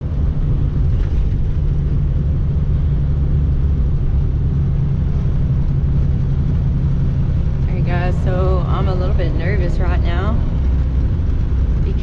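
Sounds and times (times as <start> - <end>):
truck engine and road noise: 0.0 - 12.0.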